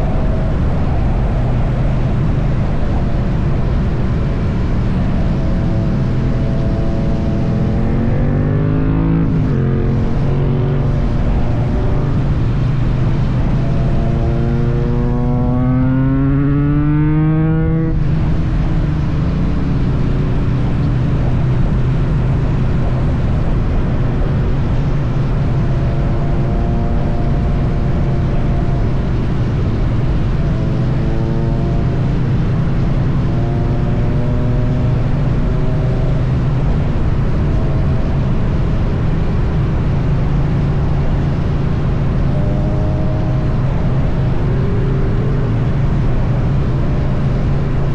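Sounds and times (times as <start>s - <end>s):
motorcycle engine revving: 0.0s - 47.9s
wind rush: 0.0s - 47.9s.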